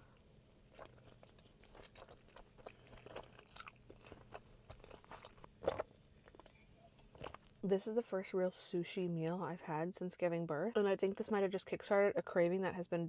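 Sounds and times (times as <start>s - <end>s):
person chewing with mouth clicks: 0.0s - 7.5s.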